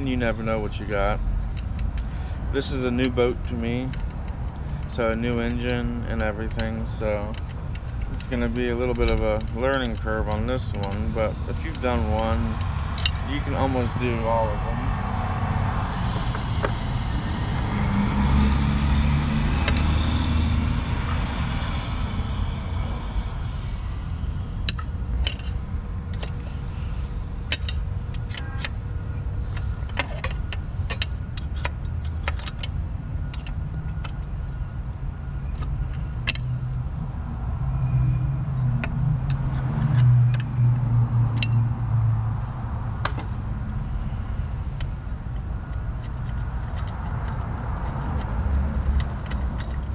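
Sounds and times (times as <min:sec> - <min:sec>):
low rumble: 0:12.2 - 0:29.8.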